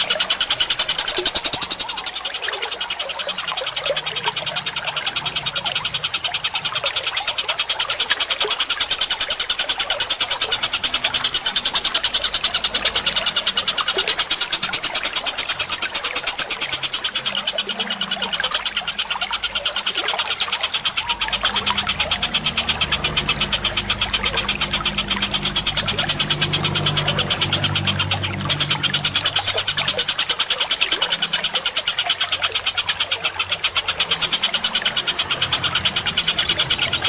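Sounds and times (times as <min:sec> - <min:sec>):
sharp bird calls: 0:00.0 - 0:37.0.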